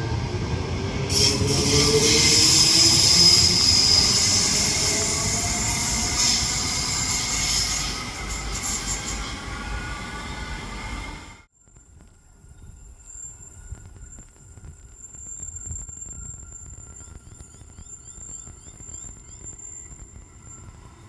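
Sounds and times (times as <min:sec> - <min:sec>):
train wheel squeal: 0:01.1 - 0:11.2.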